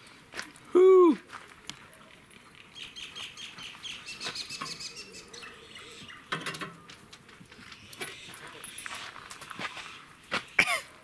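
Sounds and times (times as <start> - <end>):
small birds chirping: 2.1 - 6.4, 7.4 - 10.7.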